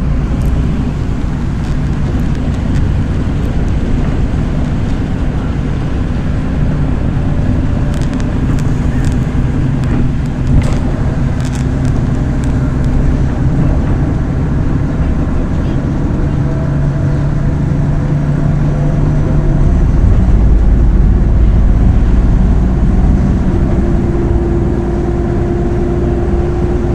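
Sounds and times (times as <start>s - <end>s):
sharp rattles and clicks: 0.0s - 14.2s
bus engine drone: 0.0s - 26.9s
road noise: 0.0s - 26.9s.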